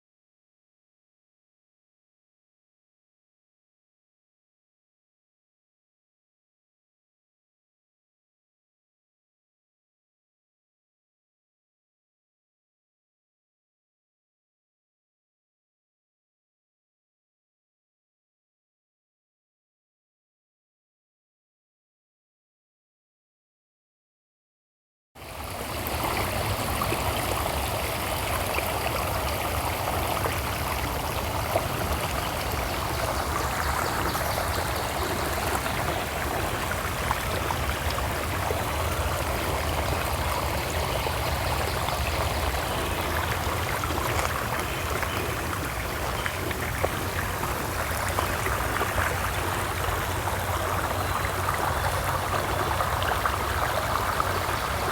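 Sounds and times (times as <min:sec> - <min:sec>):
stream water flowing: 0:25.2 - 0:54.9.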